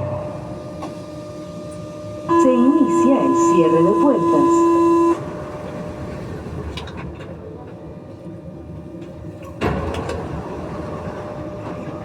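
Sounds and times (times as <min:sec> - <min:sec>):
train hum and rumble: 0:00.0 - 0:12.0
sliding doors clunking: 0:09.0 - 0:12.0.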